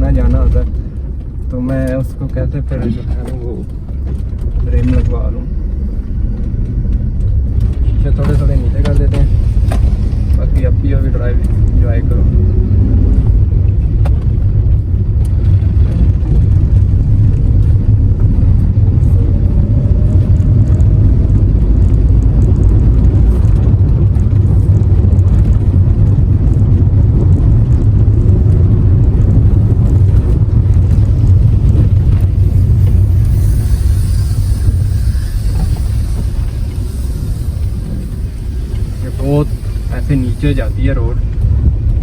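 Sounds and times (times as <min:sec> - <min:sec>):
car engine and road rumble: 0:00.0 - 0:42.0
faint rising whine: 0:02.4 - 0:42.0
thin hiss: 0:32.8 - 0:40.9.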